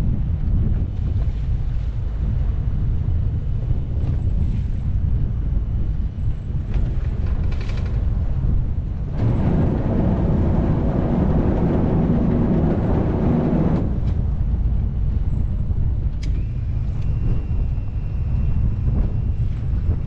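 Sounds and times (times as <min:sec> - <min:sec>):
wind buffeting the microphone: 0:00.0 - 0:20.0
boat engine running: 0:06.9 - 0:18.1.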